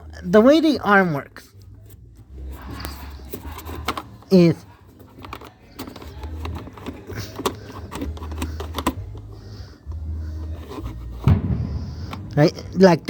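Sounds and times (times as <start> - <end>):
plastic toy clicks and rattles: 2.8 - 9.3
low handling rumble: 9.1 - 13.0.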